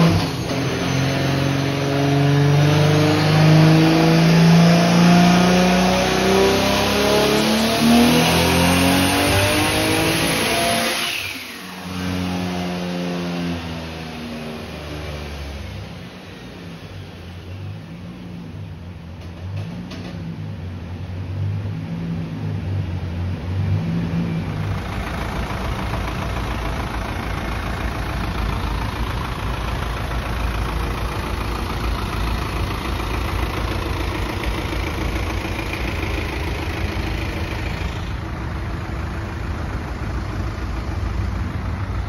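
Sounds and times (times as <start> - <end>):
road noise: 0.0 - 42.0
car engine running: 24.3 - 42.0.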